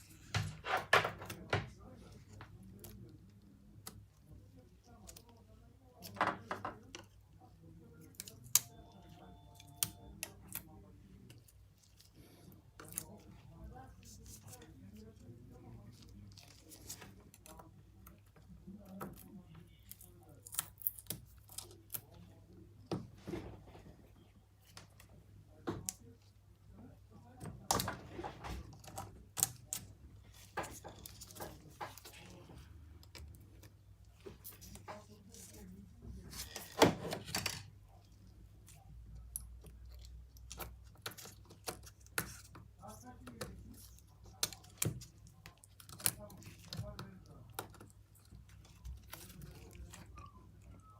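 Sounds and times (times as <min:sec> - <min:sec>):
faint steady tone: 0:08.0 - 0:10.3.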